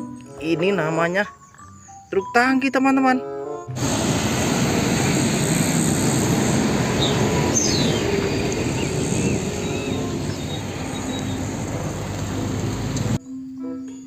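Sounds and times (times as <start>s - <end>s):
engine rumble with hiss: 3.7s - 13.2s.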